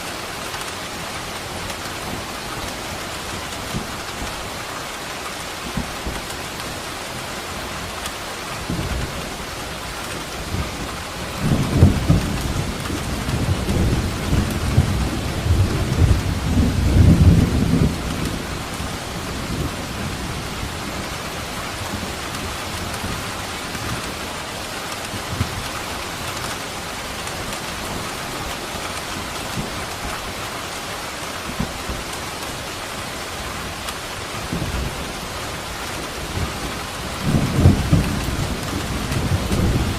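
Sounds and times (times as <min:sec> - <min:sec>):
heavy rain: 0:00.0 - 0:39.9
thunder rumbling: 0:10.4 - 0:21.1, 0:34.4 - 0:39.9.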